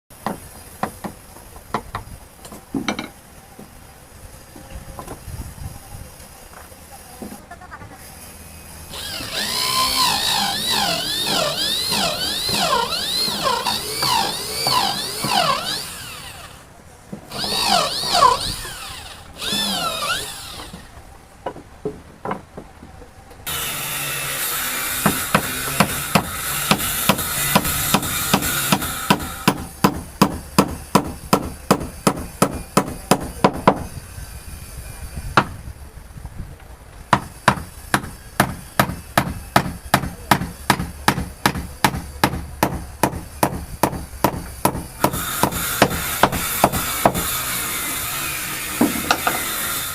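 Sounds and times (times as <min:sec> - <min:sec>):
power tool whining: 0:08.9 - 0:16.7, 0:17.3 - 0:20.9.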